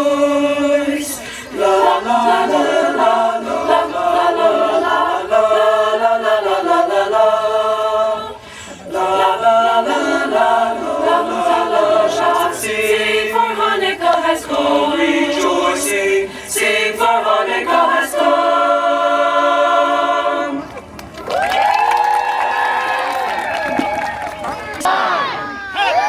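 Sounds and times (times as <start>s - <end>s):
choir singing in harmony: 0.0s - 20.8s.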